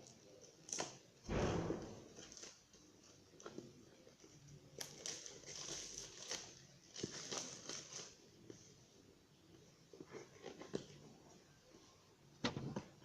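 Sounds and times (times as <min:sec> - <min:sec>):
packaging rustling and crinkling: 0:04.8 - 0:08.2.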